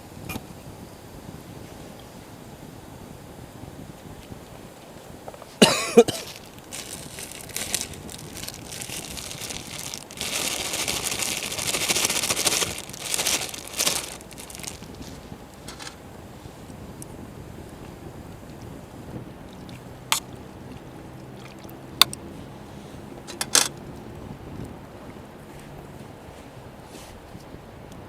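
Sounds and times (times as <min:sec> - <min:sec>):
crinkling rustling handling noise: 0:04.9 - 0:17.1, 0:17.7 - 0:24.0.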